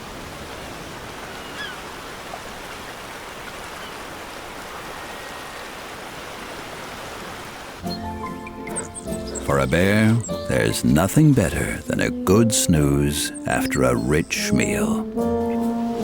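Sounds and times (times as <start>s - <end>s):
stream flowing: 0.0s - 13.5s.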